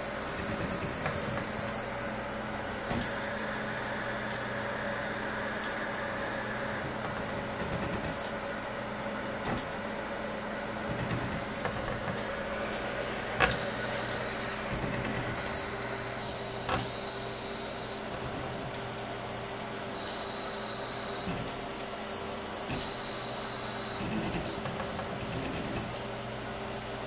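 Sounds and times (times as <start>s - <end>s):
router motors humming and whining: 0.0s - 8.1s, 10.9s - 18.9s, 19.8s - 21.7s, 22.7s - 26.0s.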